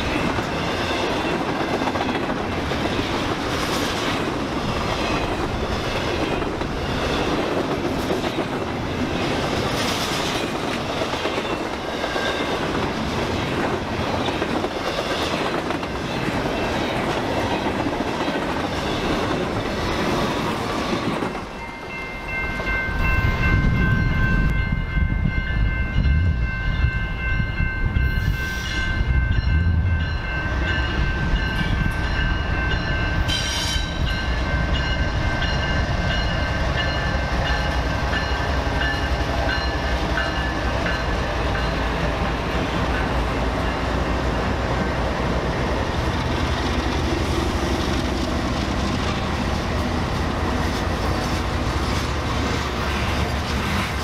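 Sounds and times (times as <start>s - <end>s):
train wheels clickety-clack: 0.0s - 21.8s, 30.2s - 54.0s
deep train rumble: 0.0s - 54.0s.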